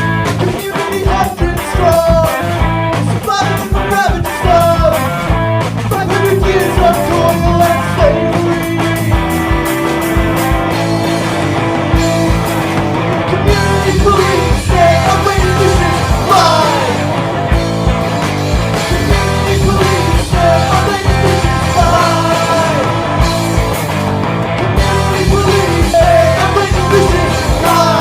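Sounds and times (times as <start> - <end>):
punk rock band playing: 0.0 - 28.0
person singing: 3.2 - 5.3, 5.9 - 9.3, 13.4 - 17.2, 18.9 - 23.2, 25.0 - 28.0.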